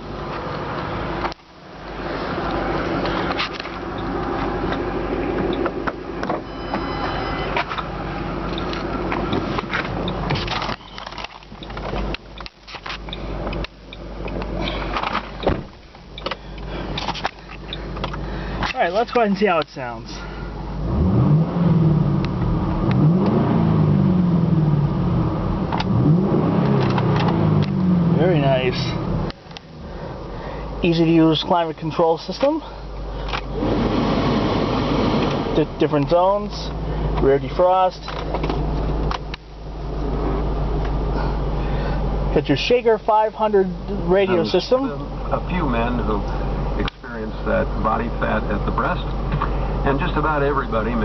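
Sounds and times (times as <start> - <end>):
car engine idling: 0.0 - 51.0
car engine revving: 20.7 - 31.1, 33.4 - 37.5.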